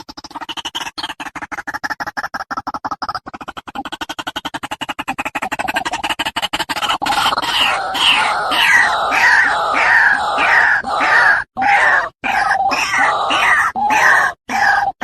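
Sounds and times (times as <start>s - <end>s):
bird harsh falling calls: 7.1s - 15.0s.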